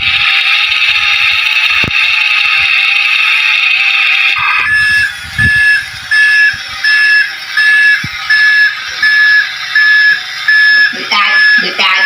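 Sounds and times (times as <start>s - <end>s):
electronic beep: 4.4s - 12.0s.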